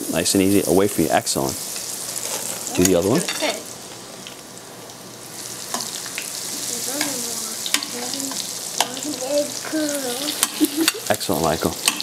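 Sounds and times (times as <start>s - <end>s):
food sizzling in hot oil: 0.0s - 12.0s
tongs clicking against pan: 7.0s - 9.0s, 10.3s - 11.2s.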